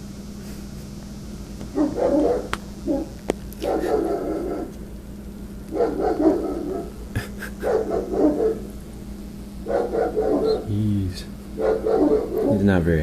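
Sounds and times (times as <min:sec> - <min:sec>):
dog barking angrily: 0:01.7 - 0:04.9, 0:05.7 - 0:07.0, 0:07.6 - 0:08.8, 0:09.6 - 0:10.7, 0:11.5 - 0:12.8.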